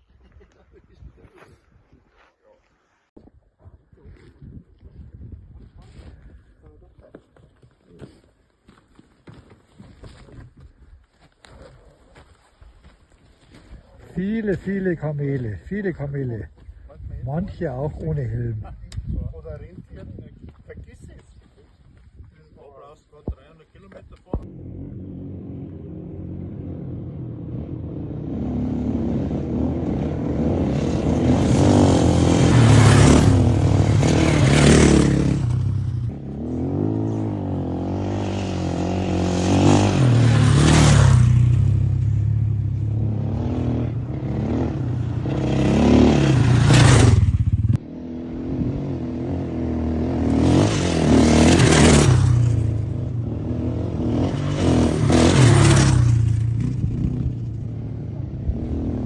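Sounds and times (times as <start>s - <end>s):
motorcycle engine accelerating: 24.4s - 59.0s.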